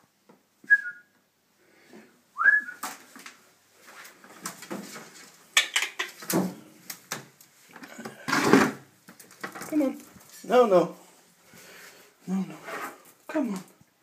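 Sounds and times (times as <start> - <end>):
bird knocking and scrabbling: 5.6 - 6.4.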